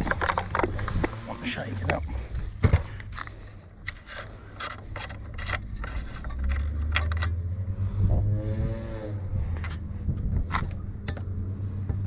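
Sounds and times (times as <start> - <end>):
hands handling chainsaw parts: 0.0 - 7.6
low steady rumble: 0.0 - 12.0.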